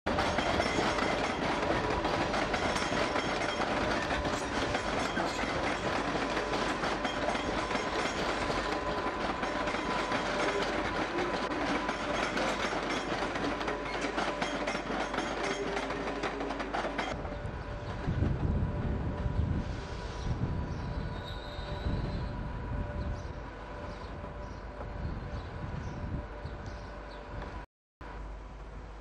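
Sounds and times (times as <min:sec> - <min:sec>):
train wheels clattering over rail joints: 0:00.1 - 0:17.2.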